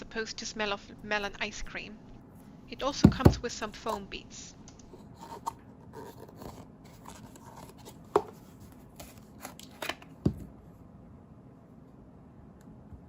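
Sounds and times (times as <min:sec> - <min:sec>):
packaging rustling: 0:04.9 - 0:10.1.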